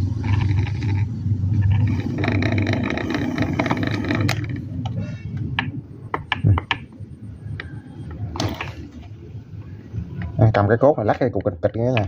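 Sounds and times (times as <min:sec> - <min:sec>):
fan motor squeaking grind: 0:00.0 - 0:05.3.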